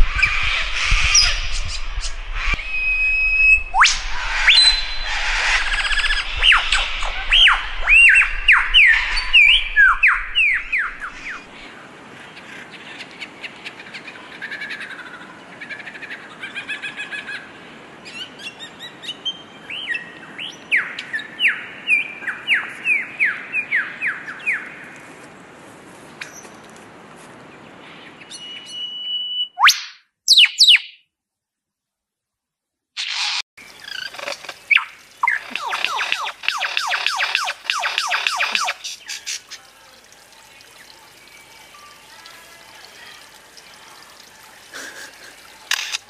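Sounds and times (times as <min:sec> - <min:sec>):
bird chatter and twitters: 0:00.0 - 0:11.5, 0:33.0 - 0:43.6.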